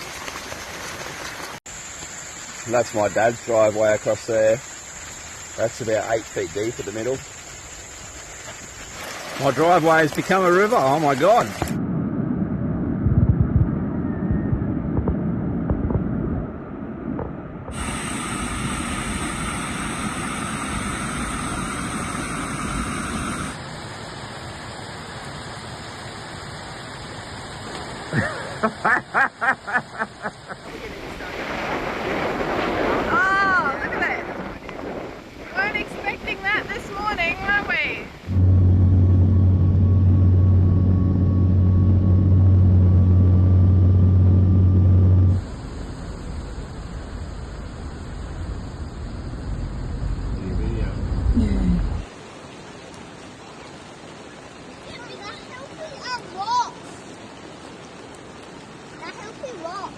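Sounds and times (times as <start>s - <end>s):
rushing water: 0.0s - 11.8s, 17.7s - 48.6s, 50.0s - 59.9s
engine low drone: 17.7s - 23.6s, 38.2s - 52.0s.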